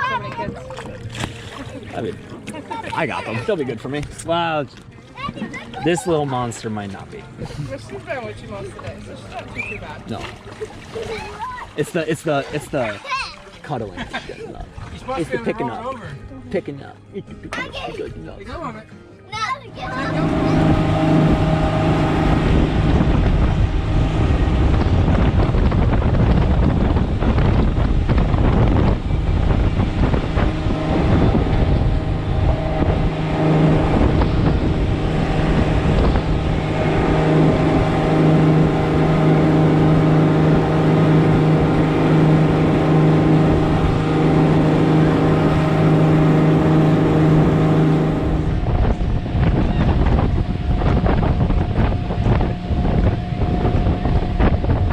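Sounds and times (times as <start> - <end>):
motorboat engine running: 0.0 - 54.9
wind buffeting microphone: 19.7 - 54.9.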